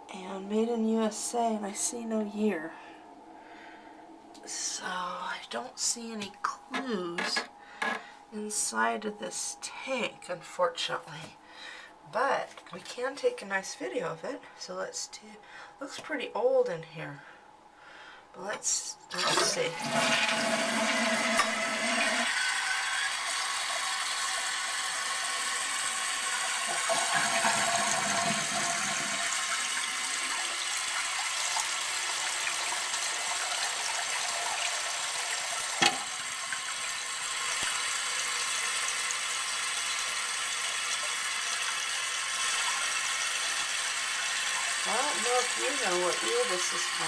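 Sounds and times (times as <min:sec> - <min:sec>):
toilet tank refilling: 0:19.1 - 0:47.0.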